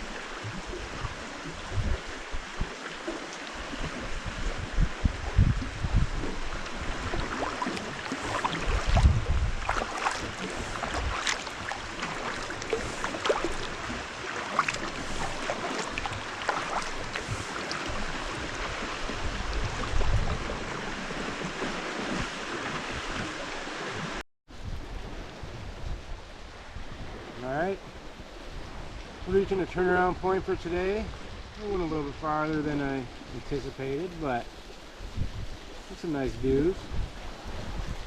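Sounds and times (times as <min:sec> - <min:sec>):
water lapping around a kayak: 0:00.0 - 0:38.0
wind rumbling on microphone: 0:00.0 - 0:38.0
small splashes: 0:06.2 - 0:24.2.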